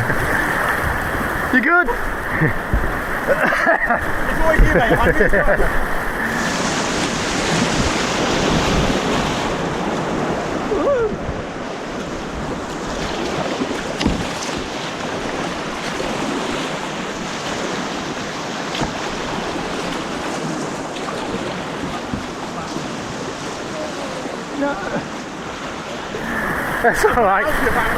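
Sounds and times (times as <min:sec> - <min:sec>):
wind buffeting microphone: 0:00.0 - 0:18.2
white water rushing: 0:00.0 - 0:27.9.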